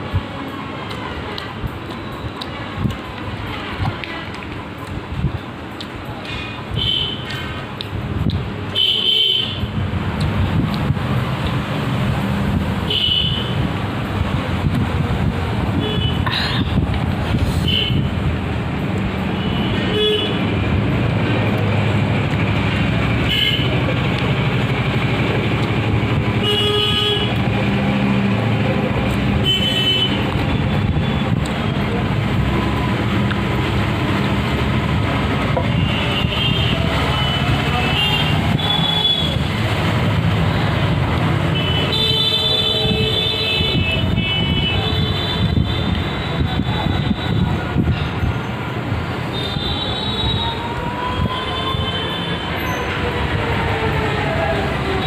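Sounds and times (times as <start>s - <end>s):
road traffic noise: 0.0s - 55.0s
vehicle horns: 6.7s - 7.3s, 8.8s - 9.7s, 12.9s - 13.6s, 15.8s - 16.3s, 17.6s - 18.2s, 19.4s - 20.4s, 23.2s - 23.8s, 26.4s - 27.4s, 29.4s - 31.4s, 35.6s - 39.5s, 41.5s - 47.6s.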